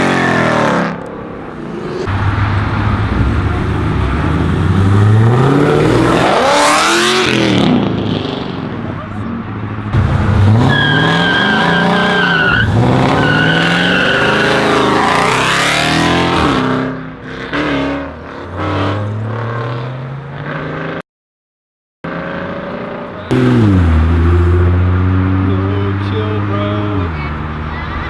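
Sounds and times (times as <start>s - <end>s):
car engine accelerating: 0.0s - 7.9s, 10.0s - 16.7s, 22.3s - 27.7s
car engine revving: 0.0s - 8.0s, 10.0s - 16.8s, 22.1s - 26.6s
tyres squealing: 10.0s - 15.2s.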